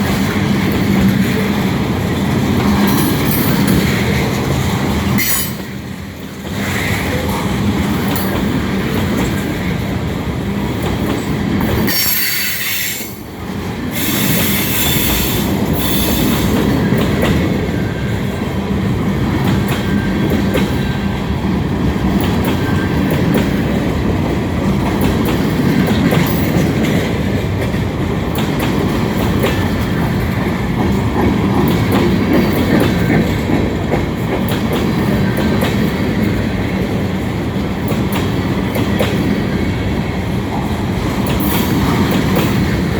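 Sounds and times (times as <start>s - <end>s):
wheels clicking over rail joints: 0.0s - 42.9s
train wheels squealing: 11.9s - 13.2s, 14.0s - 16.6s.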